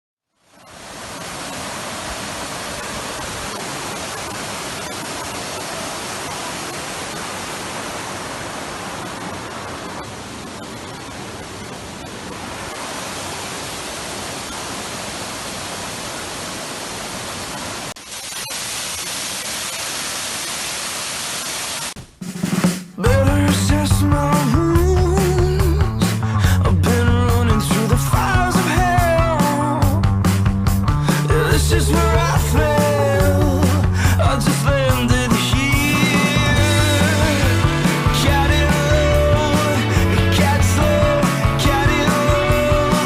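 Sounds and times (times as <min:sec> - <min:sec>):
waterfall roaring: 0:00.5 - 0:22.0.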